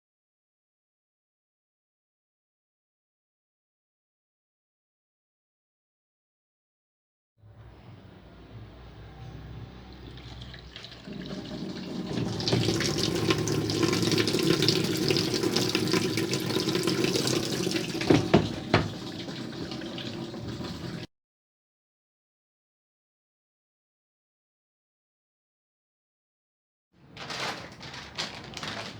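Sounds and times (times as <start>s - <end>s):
water running from a hose: 10.0s - 21.1s
sharp knocks: 18.1s - 19.0s.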